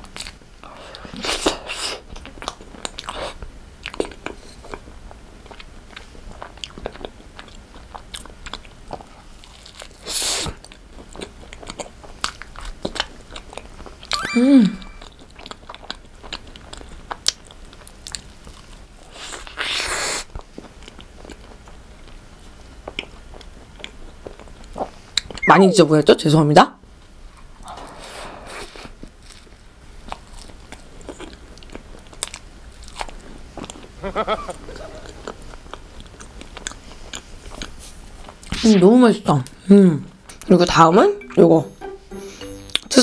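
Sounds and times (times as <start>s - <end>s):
crunchy chewing: 0.1s - 14.0s, 29.0s - 38.5s
person humming: 14.2s - 15.0s.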